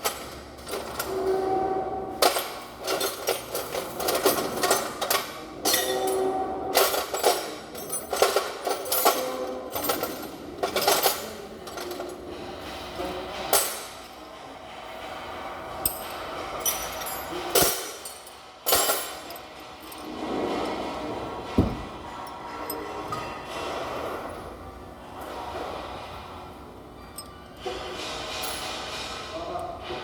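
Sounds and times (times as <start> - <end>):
tools knocking on metal engine parts: 21.6 - 22.3.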